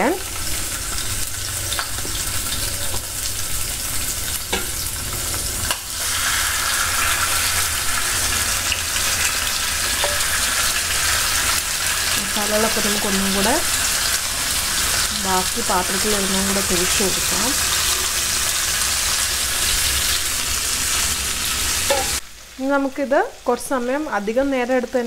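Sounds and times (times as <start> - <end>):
chicken sizzling in oil: 0.0 - 22.9.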